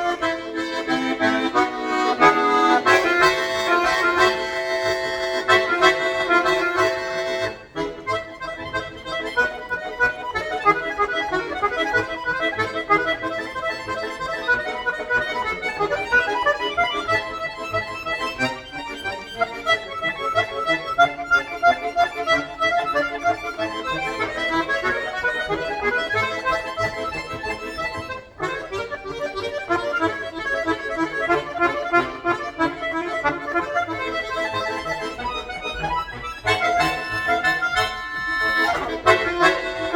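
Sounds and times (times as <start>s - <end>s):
solo accordion playing: 0.0s - 39.9s.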